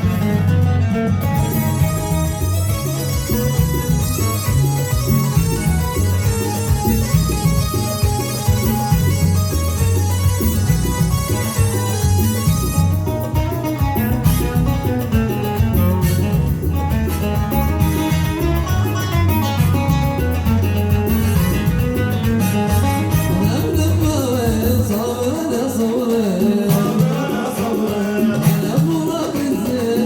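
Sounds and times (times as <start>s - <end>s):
electronic keyboard melody: 0.0s - 28.2s
steady drum beat: 0.0s - 30.0s
person singing: 23.3s - 30.0s.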